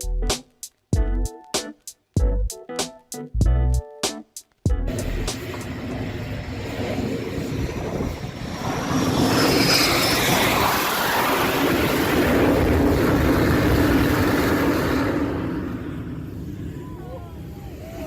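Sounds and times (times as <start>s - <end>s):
airplane engine humming: 4.8s - 18.0s.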